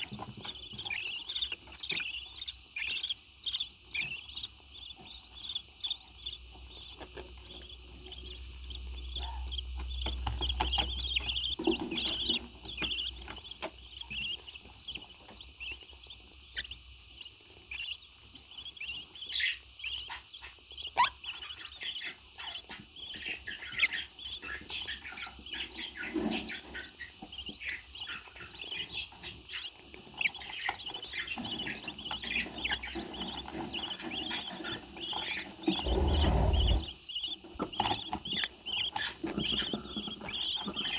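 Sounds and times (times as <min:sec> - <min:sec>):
birds chirping and chattering: 0:00.0 - 0:40.9
low rumble: 0:35.8 - 0:36.9.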